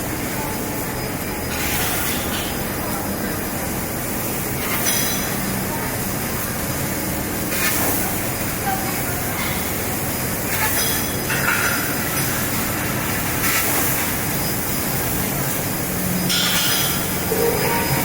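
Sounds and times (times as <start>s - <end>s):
laser cutting machine rumble: 0.0s - 18.0s.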